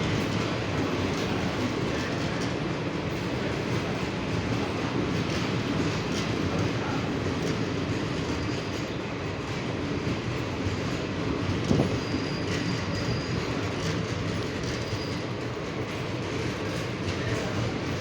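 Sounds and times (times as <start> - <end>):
train rumbling: 0.0 - 18.0
faint high wheel squeal: 8.0 - 9.2, 11.5 - 15.5.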